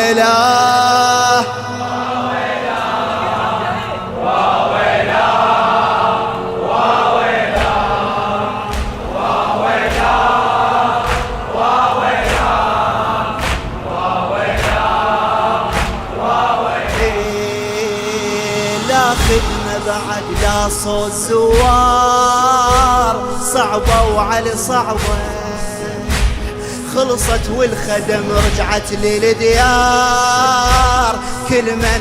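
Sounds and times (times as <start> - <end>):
men chanting in unison: 0.0 - 32.0
sharp percussive beat: 7.5 - 8.1, 8.7 - 32.0.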